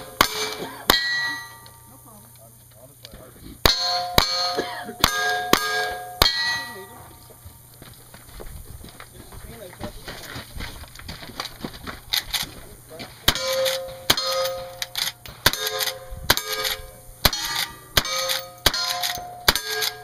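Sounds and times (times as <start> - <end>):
bullet clanging on steel target: 0.0 - 1.9, 3.7 - 7.3, 13.3 - 20.0
gunshots: 13.3 - 20.0.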